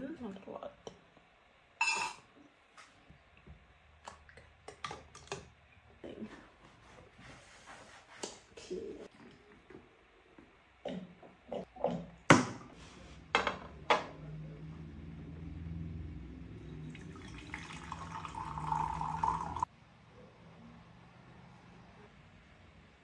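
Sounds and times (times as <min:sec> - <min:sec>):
water running into a container: 0:16.8 - 0:19.7.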